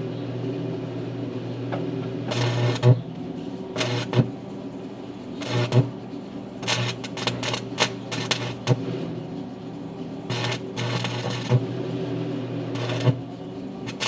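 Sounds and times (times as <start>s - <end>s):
low steady hum: 0.0s - 14.0s
welding arc crackling: 2.3s - 3.1s, 3.8s - 4.3s, 5.4s - 6.0s, 6.6s - 8.9s, 10.3s - 11.7s, 12.7s - 14.0s.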